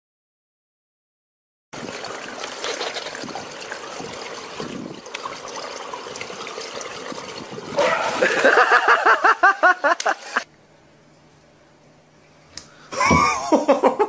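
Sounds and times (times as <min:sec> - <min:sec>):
pool water lapping and trickling: 0:01.8 - 0:10.5.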